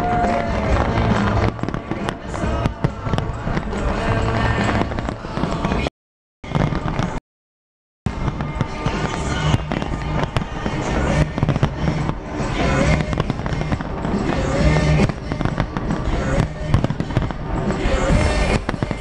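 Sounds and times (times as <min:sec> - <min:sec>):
loud music: 0:00.0 - 0:05.9, 0:08.1 - 0:19.0
fireworks bangs and crackles: 0:00.0 - 0:07.2, 0:08.1 - 0:19.0.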